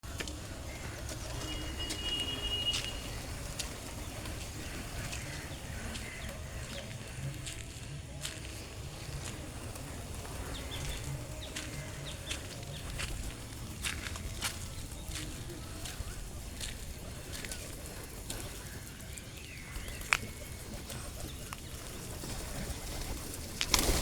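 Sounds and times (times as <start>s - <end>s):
wings flapping: 0.0s - 24.0s
high steady bird call: 0.6s - 3.4s
faint bird chirps: 0.9s - 3.3s.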